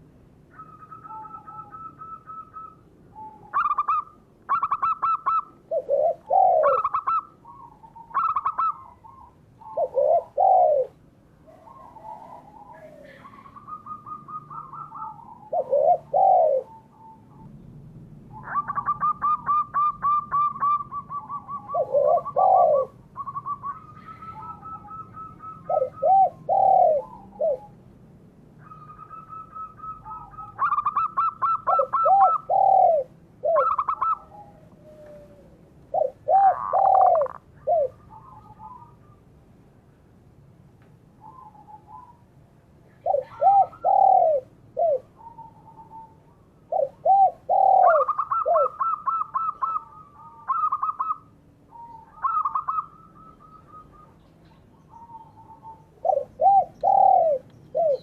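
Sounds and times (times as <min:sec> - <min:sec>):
doves cooing: 0:00.0 - 0:27.9, 0:28.6 - 0:39.3, 0:41.2 - 0:58.0.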